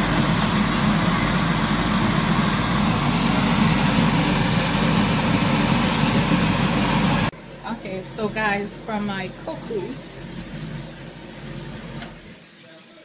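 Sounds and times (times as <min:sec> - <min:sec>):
fish frying in hot oil: 0:00.0 - 0:07.3.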